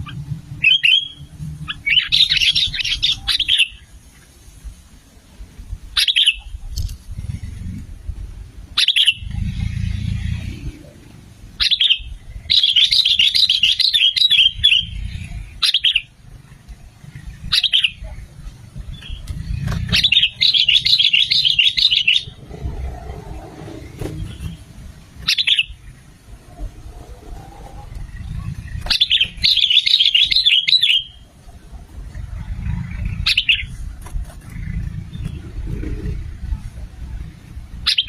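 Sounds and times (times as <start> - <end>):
bird calling: 0.0 - 4.0, 6.0 - 7.4, 8.8 - 31.6, 32.2 - 36.6
rapid chattering birdsong: 0.0 - 4.4, 5.9 - 38.0
low rumble: 6.6 - 12.5, 22.2 - 29.4, 31.2 - 37.8.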